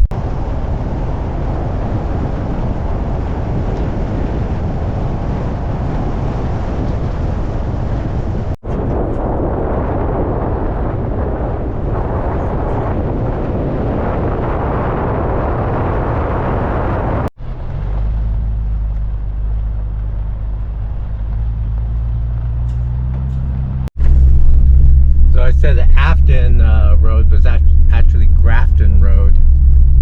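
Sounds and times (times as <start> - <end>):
vehicle road noise on dirt: 0.0 - 30.0
low engine drone: 8.6 - 30.0.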